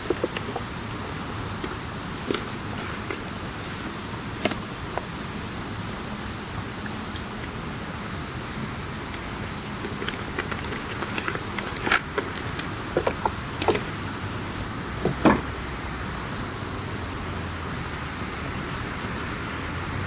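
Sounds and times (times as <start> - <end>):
campfire crackling and popping: 0.0 - 14.4
steady fire hiss: 0.0 - 20.0.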